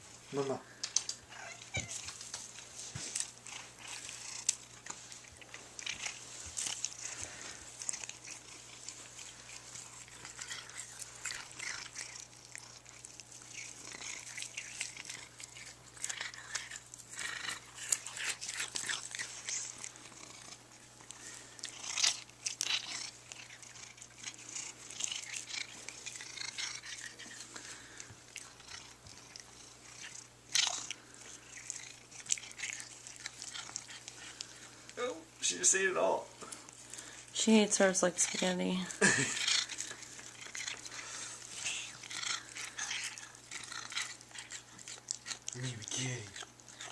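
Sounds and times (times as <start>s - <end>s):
cat chewing grass: 0.0s - 46.9s.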